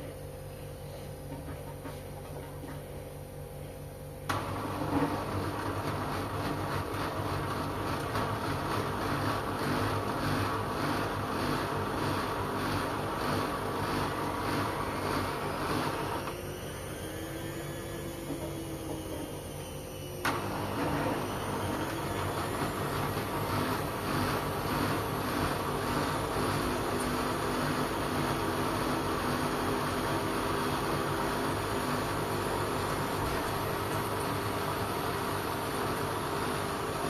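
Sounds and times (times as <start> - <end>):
washing machine hum: 0.0 - 37.0
faint motor tone: 13.9 - 28.4.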